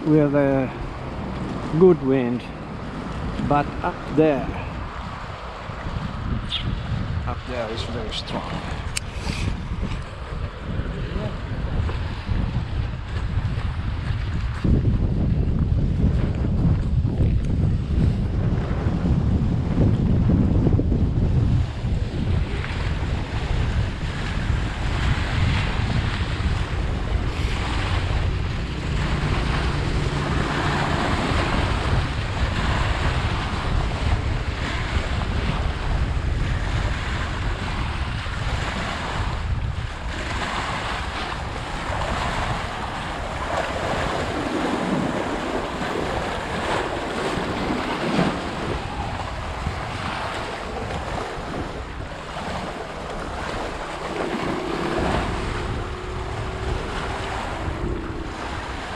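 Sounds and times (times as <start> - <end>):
waves washing: 0.0 - 15.2, 17.7 - 58.9
wind buffeting microphone: 0.0 - 58.9.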